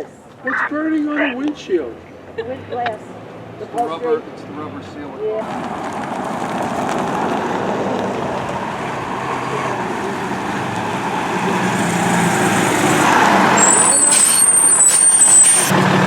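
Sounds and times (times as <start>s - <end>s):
diesel engine idling: 5.4s - 16.0s
heavy truck pulling up: 5.4s - 16.0s
high brake squeal: 12.8s - 15.8s.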